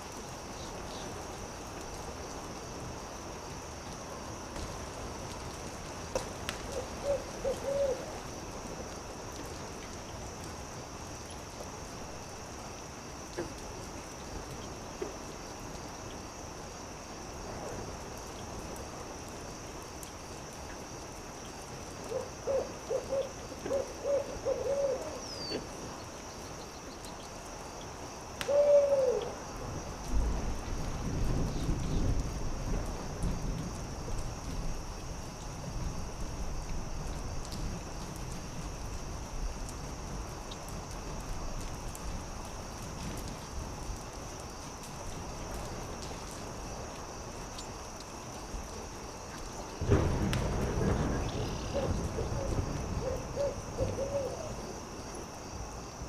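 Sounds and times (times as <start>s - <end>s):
faint campfire crackles: 0.0s - 56.0s
faint steady hiss: 0.0s - 56.0s
owl hooting: 6.8s - 8.0s, 22.1s - 25.6s, 28.5s - 29.4s, 51.7s - 54.6s.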